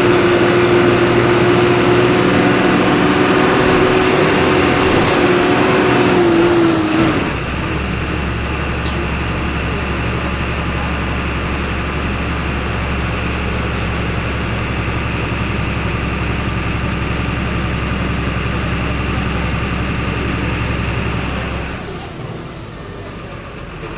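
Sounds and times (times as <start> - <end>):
bus diesel engine idling: 0.0 - 23.9
steady high beep: 5.6 - 9.0.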